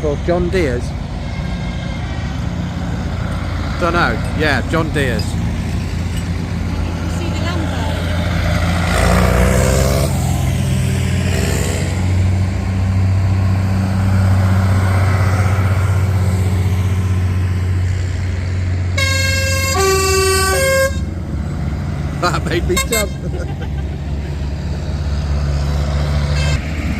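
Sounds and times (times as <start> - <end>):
diesel tractor engines running: 0.0 - 26.9
loud two-note horn: 19.0 - 21.1, 26.3 - 26.7.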